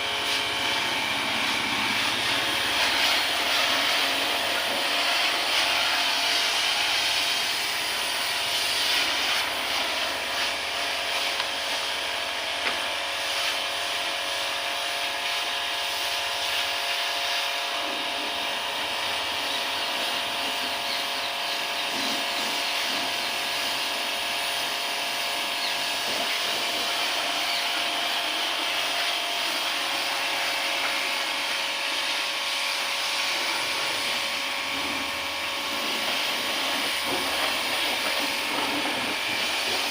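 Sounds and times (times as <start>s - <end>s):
car wash hiss: 0.0s - 13.8s, 28.3s - 39.9s
machine hum: 0.0s - 39.9s.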